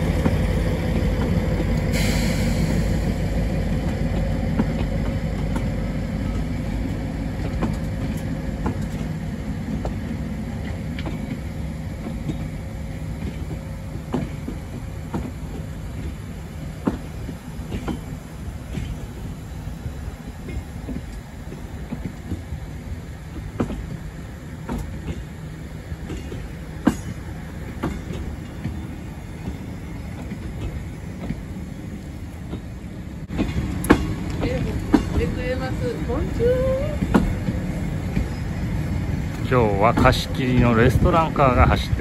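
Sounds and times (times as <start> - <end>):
low rumble of train wheels: 0.0 - 42.0
wheels knocking over rail joints: 26.0 - 38.4.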